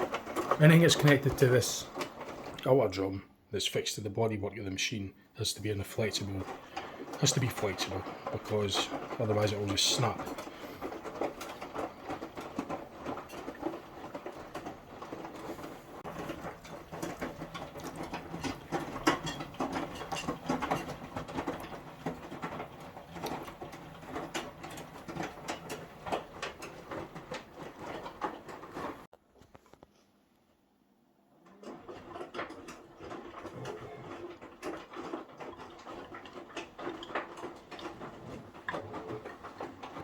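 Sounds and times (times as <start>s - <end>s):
washing machine drum turning: 6.0s - 29.0s
small clicks and knocks: 6.4s - 30.1s, 31.6s - 40.0s.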